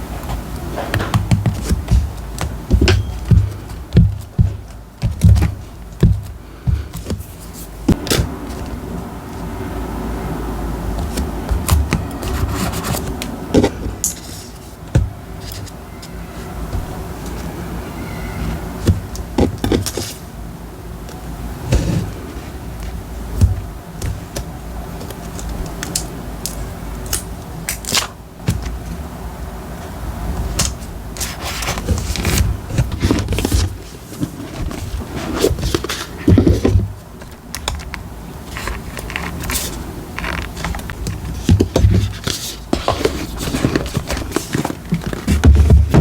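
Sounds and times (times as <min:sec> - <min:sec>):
paper rustling and crackling: 0:29.8 - 0:46.0.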